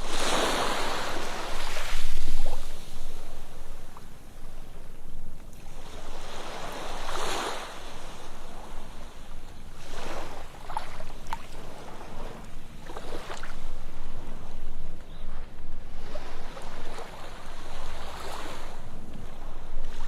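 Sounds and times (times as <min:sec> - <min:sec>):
ocean waves breaking on beach: 0:00.0 - 0:20.0.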